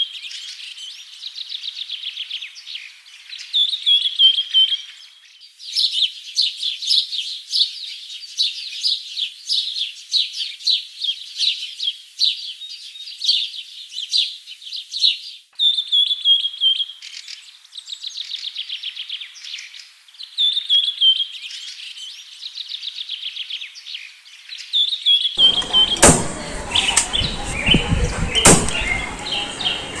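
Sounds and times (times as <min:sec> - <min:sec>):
small birds chirping: 0:00.0 - 0:30.0
sharp clicks or bangs: 0:25.4 - 0:29.3
rumbling noise: 0:25.4 - 0:30.0.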